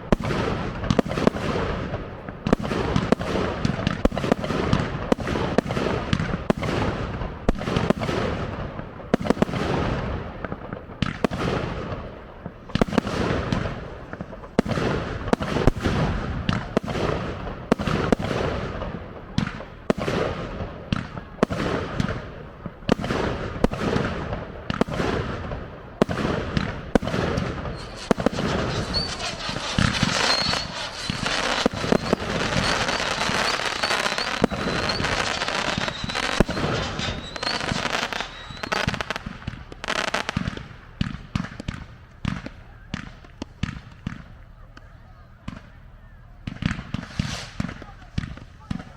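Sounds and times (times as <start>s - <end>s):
firework crackling: 0.0s - 48.9s
firework shells bursting: 26.5s - 40.6s, 46.8s - 48.4s
faint high whistle: 27.7s - 39.0s.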